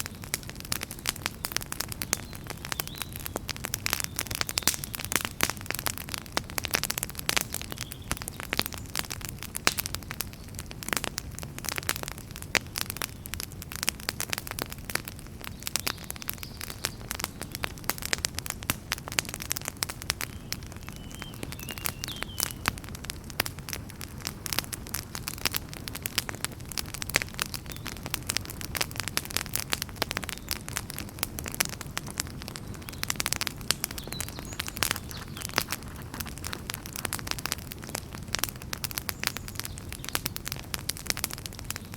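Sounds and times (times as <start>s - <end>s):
low rumble of burning: 0.0s - 41.9s
wood fire crackling: 0.0s - 41.9s.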